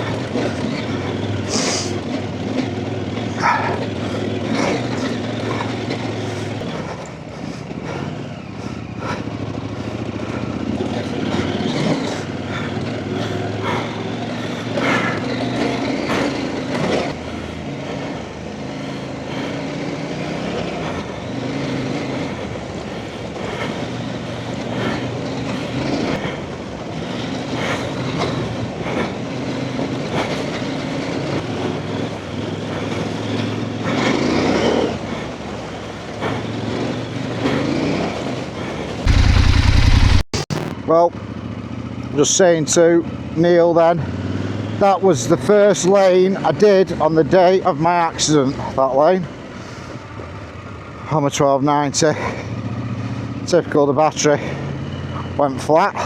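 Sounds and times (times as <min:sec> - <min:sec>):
motorcycle engine revving: 0:00.0 - 0:29.9, 0:36.3 - 0:40.8.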